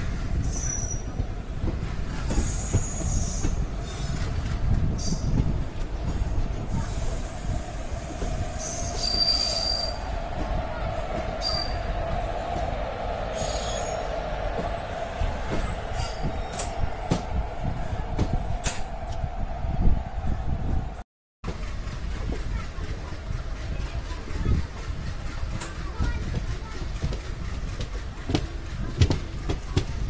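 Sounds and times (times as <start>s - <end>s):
train low rumble: 0.0s - 30.0s
train whine: 0.0s - 30.0s.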